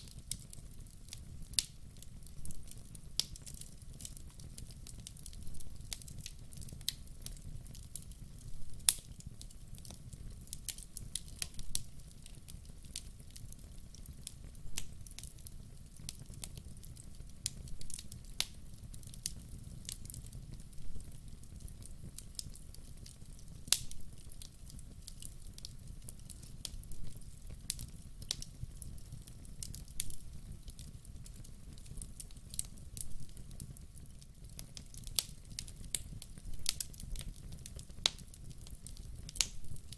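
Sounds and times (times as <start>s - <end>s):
low rumble of flame: 0.0s - 39.9s
wood crackling and popping: 0.0s - 39.9s.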